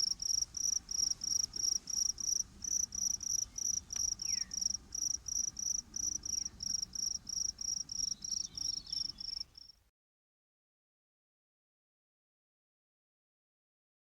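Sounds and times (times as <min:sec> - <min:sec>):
cricket chirping: 0:00.0 - 0:09.8.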